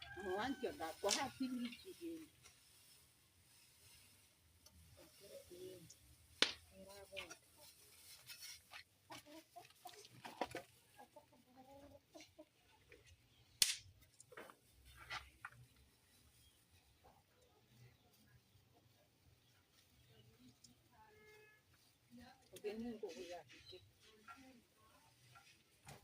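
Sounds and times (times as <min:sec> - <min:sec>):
chickens clucking: 0:07.0 - 0:13.3.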